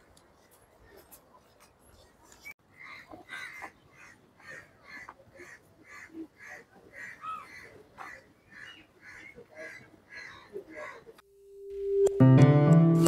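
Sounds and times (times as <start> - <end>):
birds calling: 2.4 - 11.2.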